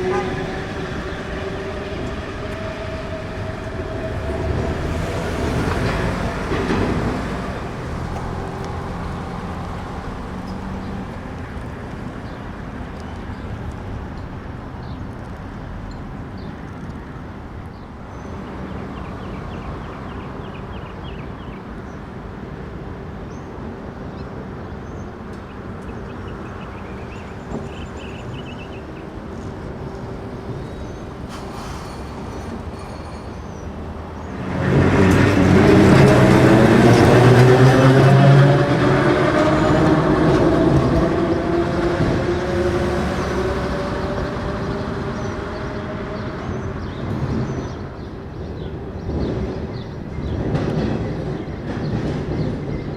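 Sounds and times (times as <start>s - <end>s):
city street traffic: 0.0s - 52.9s
streetcar running on rails: 0.0s - 52.9s.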